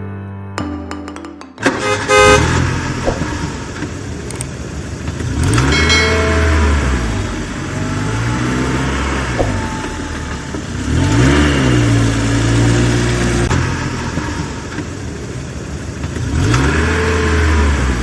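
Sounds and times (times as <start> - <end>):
vehicle engine revving: 1.8 - 18.0.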